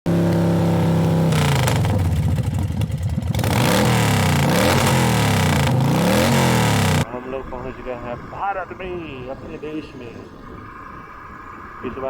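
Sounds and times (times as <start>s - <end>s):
vehicle engine revving: 0.1s - 7.1s.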